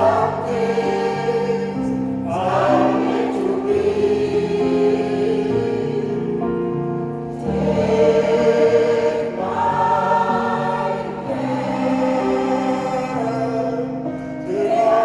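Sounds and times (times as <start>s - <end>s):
mixed choir singing chords: 0.0s - 15.0s.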